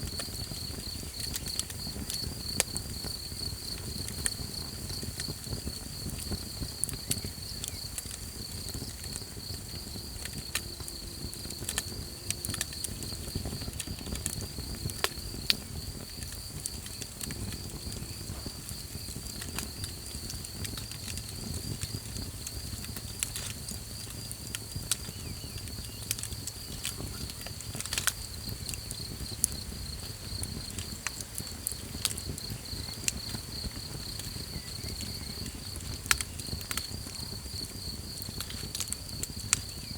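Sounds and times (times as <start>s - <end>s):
campfire crackling and popping: 0.0s - 39.9s
cricket trill: 0.0s - 39.9s.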